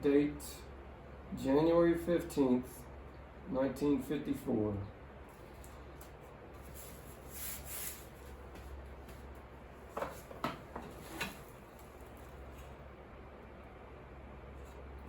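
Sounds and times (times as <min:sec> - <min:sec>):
steady low hum: 0:00.0 - 0:15.0
soft rubbing: 0:06.6 - 0:08.8.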